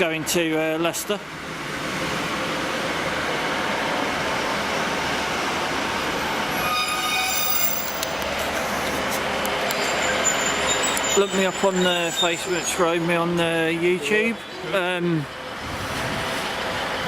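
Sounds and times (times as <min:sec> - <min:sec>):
train wheels rumbling on rail: 0:00.0 - 0:17.0
high-pitched wheel squeal: 0:06.5 - 0:08.2, 0:09.7 - 0:13.0.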